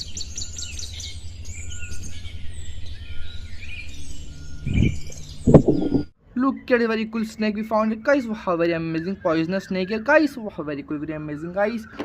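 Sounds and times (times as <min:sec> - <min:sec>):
birds chirping and whistling: 0:00.0 - 0:12.0
steady low rumble: 0:04.6 - 0:06.1.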